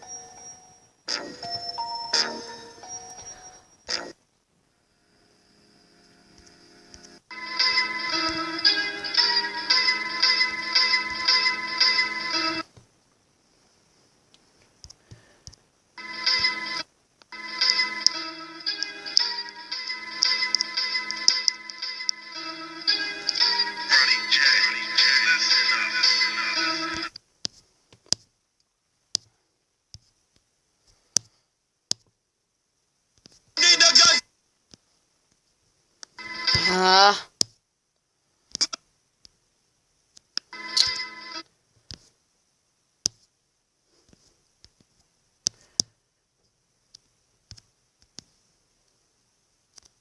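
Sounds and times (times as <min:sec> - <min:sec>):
music playing: 0:00.0 - 0:04.2, 0:07.3 - 0:12.7, 0:16.0 - 0:27.1, 0:36.2 - 0:37.2, 0:40.6 - 0:41.4
fingers tapping touchscreen: 0:14.8 - 0:16.8, 0:17.6 - 0:22.2, 0:26.9 - 0:28.3.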